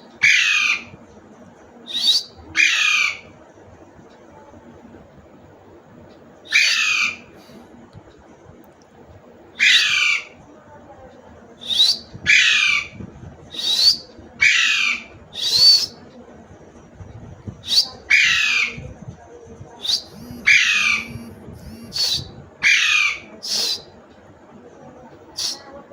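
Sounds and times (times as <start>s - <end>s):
parrot squawking: 6.5s - 7.2s, 9.6s - 10.4s, 13.6s - 15.8s, 19.8s - 23.8s.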